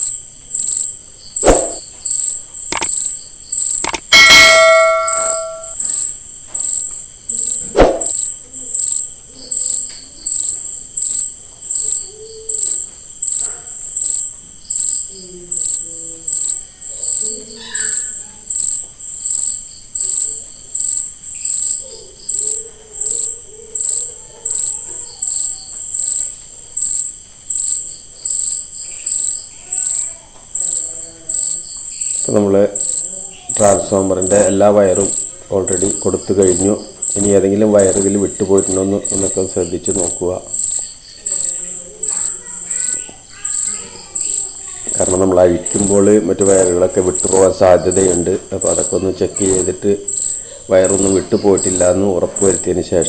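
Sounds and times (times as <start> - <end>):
insect chirping: 0.0 - 53.0
sharp click: 1.4 - 1.9, 2.6 - 5.9, 7.7 - 8.2.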